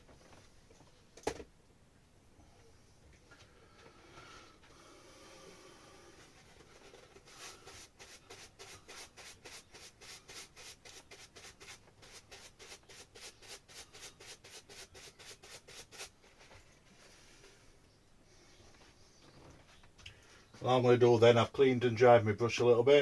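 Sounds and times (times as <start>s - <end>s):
paintbrush scrubbing on canvas: 6.2s - 17.5s.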